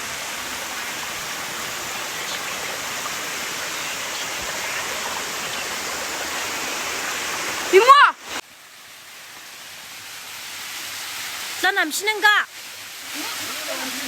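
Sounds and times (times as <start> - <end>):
flowing water rushing: 0.0 - 14.0.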